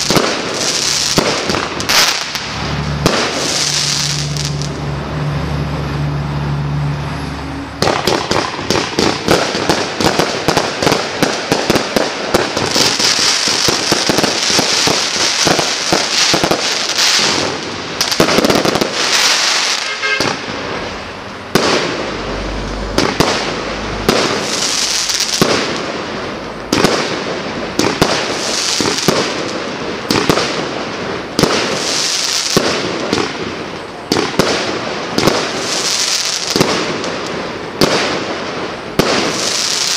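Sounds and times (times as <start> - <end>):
fireworks firing volleys: 0.0 - 4.9, 7.8 - 39.9
fireworks crackling: 0.0 - 6.6, 7.6 - 39.9.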